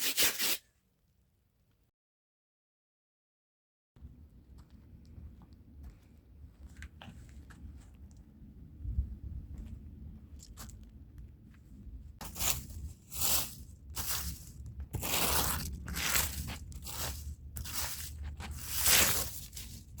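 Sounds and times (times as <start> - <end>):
hand brush scrubbing a rug: 0.0 - 0.6, 12.2 - 20.0.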